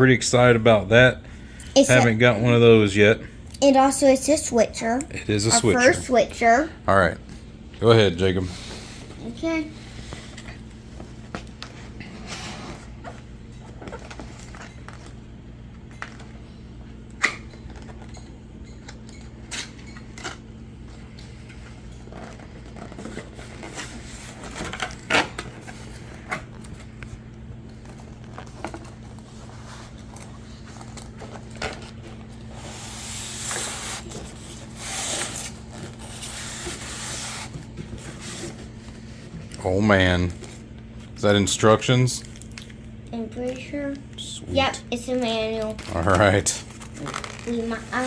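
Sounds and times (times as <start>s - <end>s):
steady low hum: 0.0s - 48.0s
paper and cardboard rustling: 21.3s - 40.7s, 44.6s - 48.0s.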